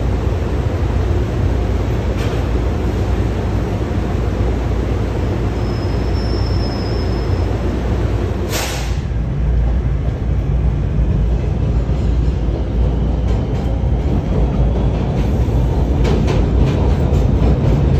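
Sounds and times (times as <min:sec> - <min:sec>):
train rumbling: 0:00.0 - 0:17.9
brief hiss: 0:08.5 - 0:09.1.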